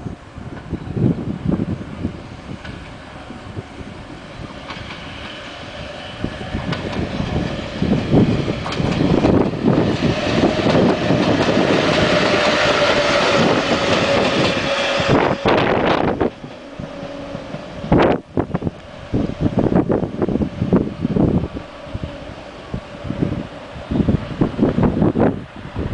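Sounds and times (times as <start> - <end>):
electric locomotives passing: 0.0 - 25.9
wheels clattering over rail joints: 4.6 - 21.8.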